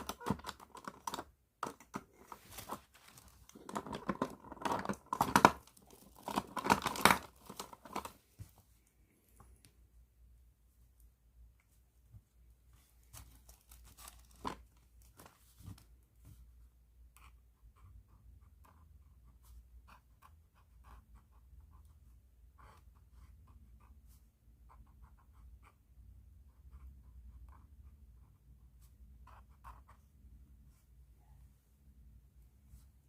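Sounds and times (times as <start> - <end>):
crinkly rustle: 2.2 - 8.2, 12.9 - 15.8
pen scratching on paper: 17.1 - 30.2.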